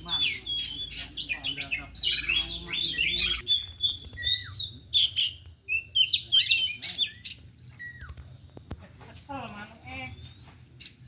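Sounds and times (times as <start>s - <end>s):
birds singing whistles and chirps: 0.0s - 8.7s, 9.8s - 11.0s.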